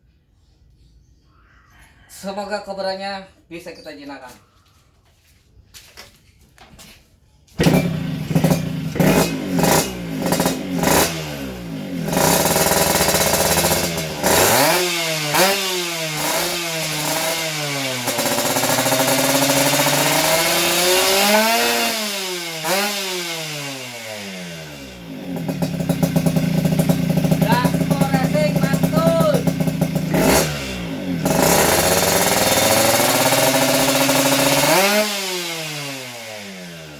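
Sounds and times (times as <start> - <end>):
motorcycle engine revving: 7.6 - 36.9.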